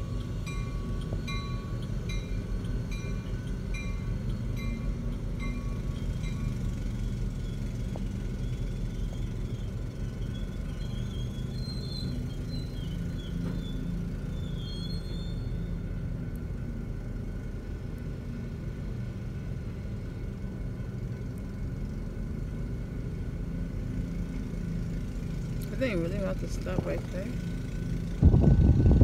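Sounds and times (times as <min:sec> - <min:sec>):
wheels squealing: 0:00.0 - 0:16.0
freight train low rumble: 0:00.0 - 0:29.0.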